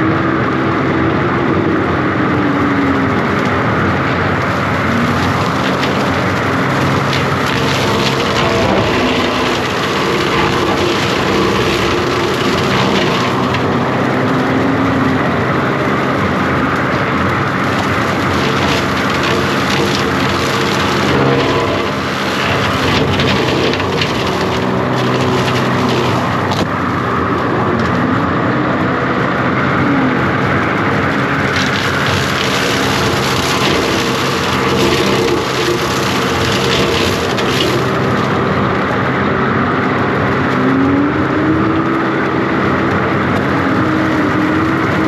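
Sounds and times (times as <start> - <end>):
diesel engine running under load: 0.0 - 45.0
brush and limbs cracking: 3.2 - 28.0, 30.3 - 39.0.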